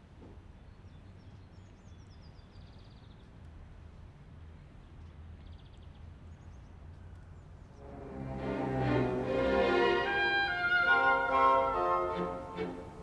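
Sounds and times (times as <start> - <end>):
faint birdsong trills: 0.0 - 3.6, 4.5 - 7.9
low steady hum: 0.0 - 13.0.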